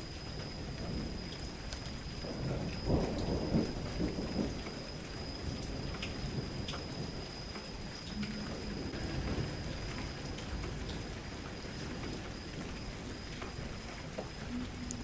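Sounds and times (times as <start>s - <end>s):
raindrops ticking: 0.0s - 15.0s
steady rain: 0.0s - 15.0s
low thunder rumble: 0.4s - 15.0s
faint high tone: 8.2s - 9.1s, 14.5s - 15.0s.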